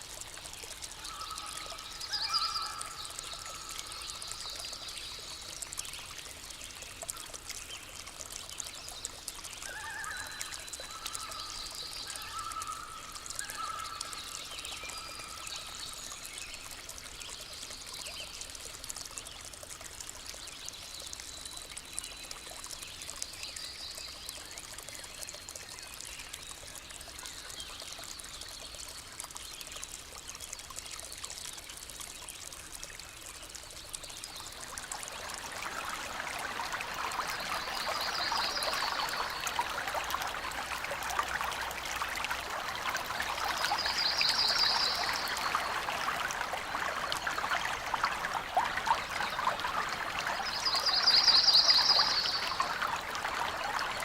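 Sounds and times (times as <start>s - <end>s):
stream running water: 0.0s - 54.0s.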